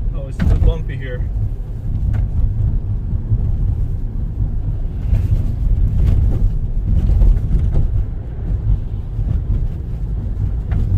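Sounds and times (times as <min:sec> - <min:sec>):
tyres and engine rumbling: 0:00.0 - 0:10.9.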